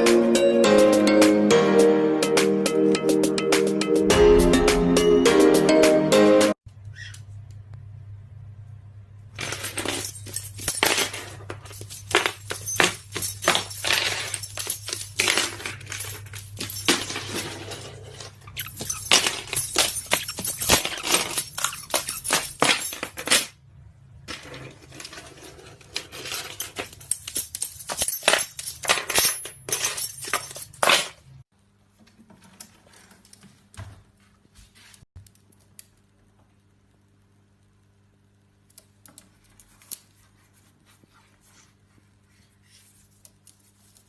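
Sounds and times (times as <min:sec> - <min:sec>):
metallic clinking and jingling: 0:09.4 - 0:23.6, 0:26.2 - 0:31.2.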